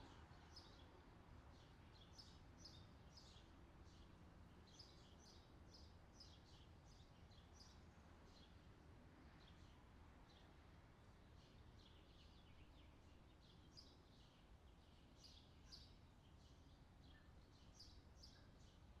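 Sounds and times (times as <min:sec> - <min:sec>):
small birds chirping: 0:11.3 - 0:19.0.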